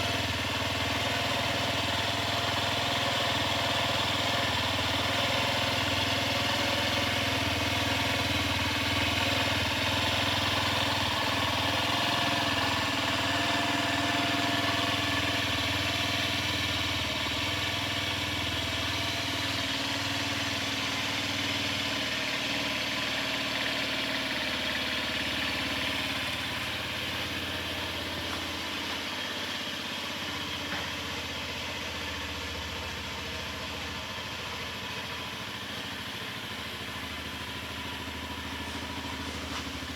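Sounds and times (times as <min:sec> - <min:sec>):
scooter engine idling: 0:00.0 - 0:39.9.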